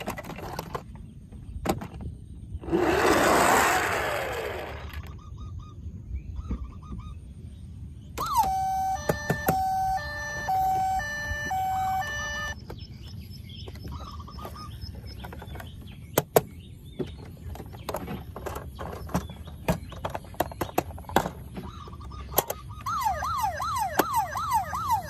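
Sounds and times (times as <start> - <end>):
faint chirping tones: 4.9 - 16.0
toy electronic beeping tune: 8.2 - 12.6, 22.8 - 25.0.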